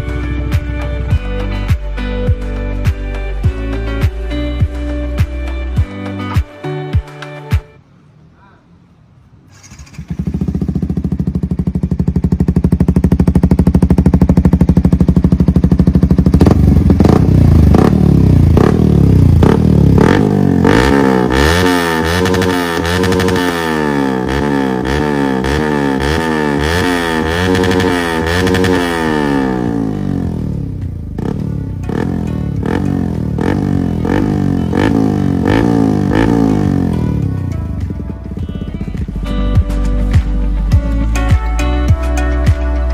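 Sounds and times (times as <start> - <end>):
motorcycle engine revving: 9.3 - 40.8.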